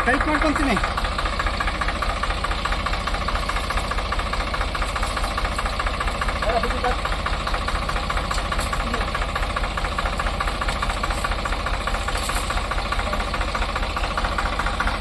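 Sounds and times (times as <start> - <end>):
diesel tractor engine idling: 0.0 - 15.0.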